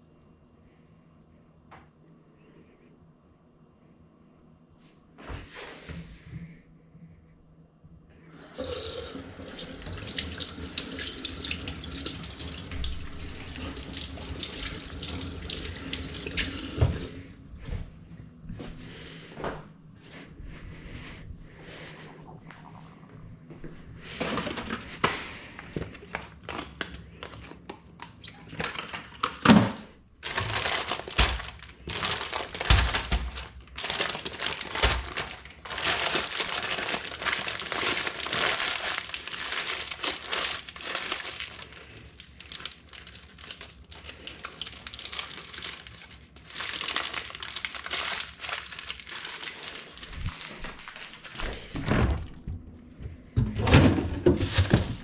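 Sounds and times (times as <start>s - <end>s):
wrapping rustling and crinkling: 24.0s - 29.5s, 30.2s - 51.8s, 54.3s - 55.0s.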